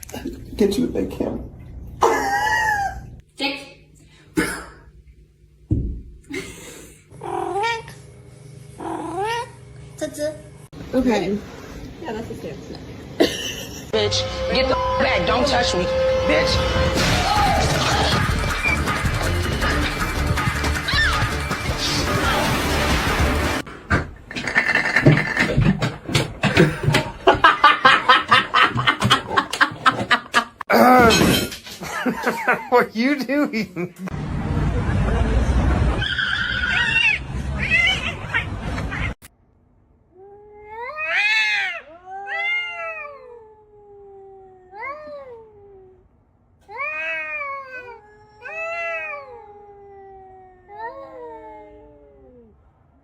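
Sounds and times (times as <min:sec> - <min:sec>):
person laughing: 0:02.0 - 0:03.1, 0:06.3 - 0:07.0, 0:13.2 - 0:13.9, 0:26.6 - 0:31.0, 0:31.8 - 0:34.1
cat meowing: 0:36.0 - 0:39.2, 0:40.2 - 0:46.0, 0:46.6 - 0:52.5.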